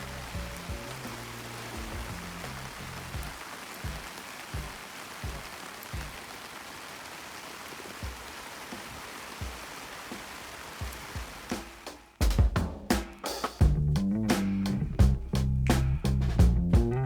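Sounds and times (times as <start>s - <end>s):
steady rain falling: 0.0s - 12.5s.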